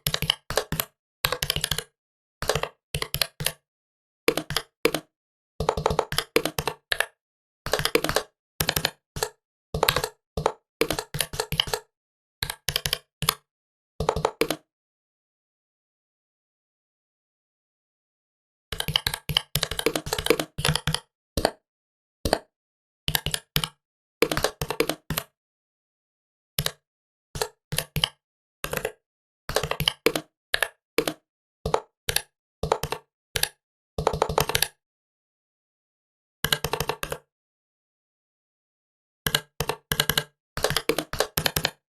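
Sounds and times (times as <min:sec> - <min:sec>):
typing on laptop keyboard: 0:00.0 - 0:03.6, 0:04.3 - 0:13.4, 0:14.0 - 0:14.6, 0:18.7 - 0:21.6, 0:23.1 - 0:25.3, 0:26.6 - 0:26.8, 0:27.4 - 0:34.8, 0:36.5 - 0:37.3, 0:39.3 - 0:41.8.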